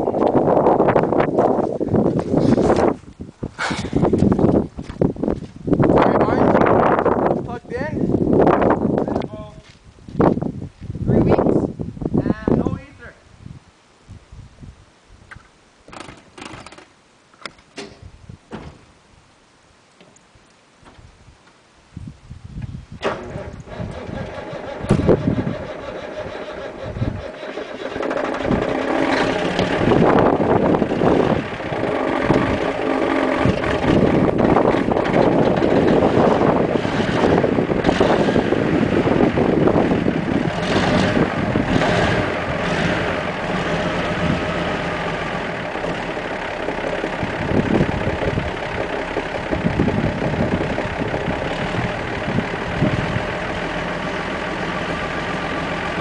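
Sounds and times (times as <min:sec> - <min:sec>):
diesel truck engine starting: 0:00.0 - 0:04.6, 0:22.9 - 0:56.0.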